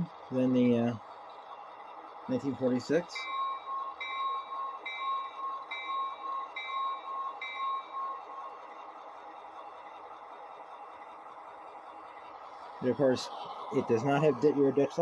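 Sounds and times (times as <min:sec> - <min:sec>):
model locomotive bell ringing: 0:02.4 - 0:09.9.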